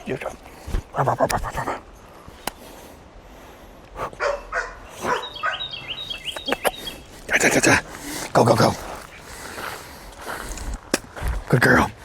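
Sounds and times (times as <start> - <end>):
dog barking: 4.2 - 5.7
bird chirping: 4.2 - 7.8.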